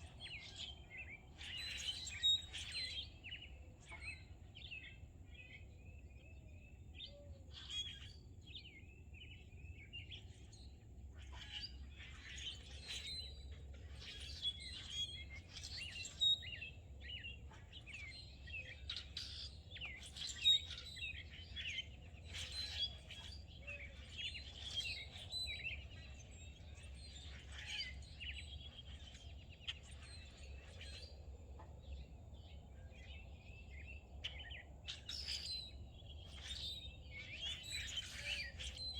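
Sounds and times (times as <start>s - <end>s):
songbirds chirping and singing: 0.0s - 38.9s.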